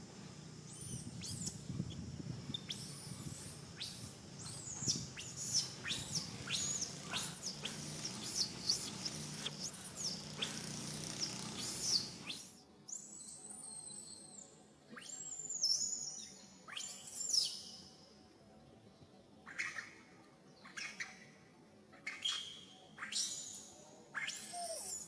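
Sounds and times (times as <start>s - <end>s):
baby monkey squealing: 2.6s - 12.4s, 24.2s - 25.0s.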